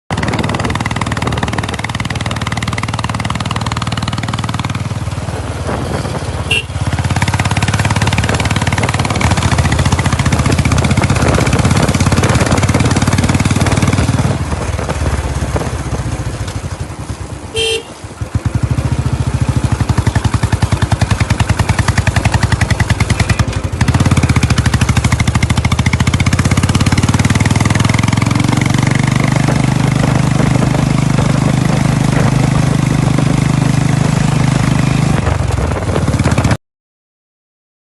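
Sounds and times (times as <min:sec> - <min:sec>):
motorcycle engine thumping: 0:00.1 - 0:34.3
short horn beep: 0:06.4 - 0:06.8, 0:17.5 - 0:18.0.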